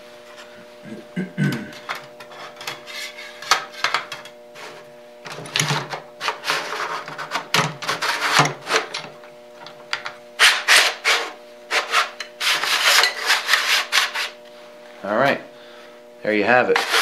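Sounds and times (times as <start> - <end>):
faint steady hum: 0.0 - 17.0
metal scraping rubs: 2.2 - 4.9, 6.2 - 8.9, 10.4 - 14.4, 16.6 - 17.0.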